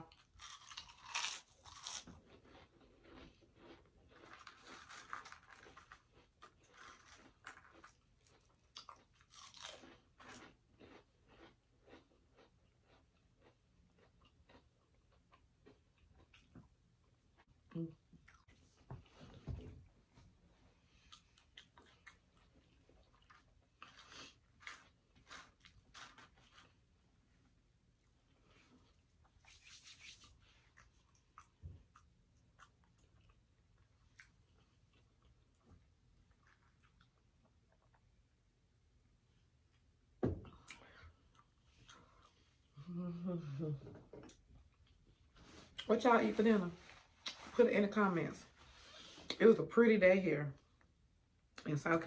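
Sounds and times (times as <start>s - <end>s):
potato chip crunch: 0.0s - 16.3s, 23.1s - 26.8s
chewing with soft crunches: 0.0s - 38.6s, 40.5s - 43.4s, 44.0s - 45.9s.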